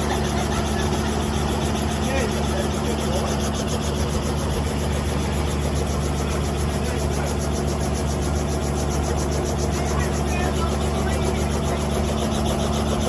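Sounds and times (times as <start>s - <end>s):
helicopter engine drone: 0.0s - 13.0s
helicopter rotor beat: 0.0s - 13.0s.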